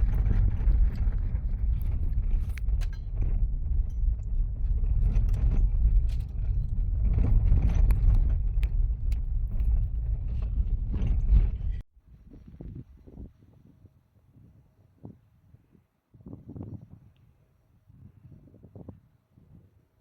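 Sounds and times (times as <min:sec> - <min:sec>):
car tyres rumbling on gravel: 0:00.0 - 0:11.8.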